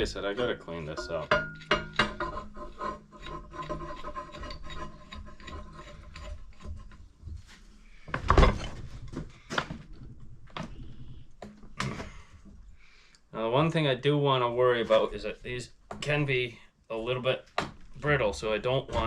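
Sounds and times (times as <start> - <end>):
tools clinking and scraping: 0.3 - 7.0.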